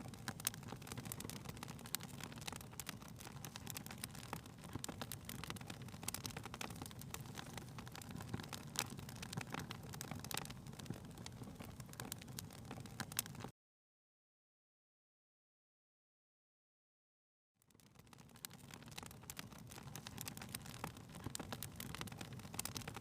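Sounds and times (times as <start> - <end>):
fire crackling: 0.0 - 13.5, 17.6 - 23.0.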